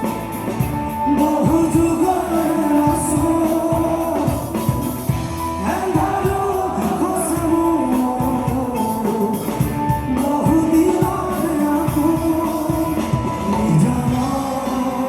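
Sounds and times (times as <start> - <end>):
drums beating: 0.0 - 15.0
live rock band: 0.0 - 15.0
singing: 1.1 - 15.0.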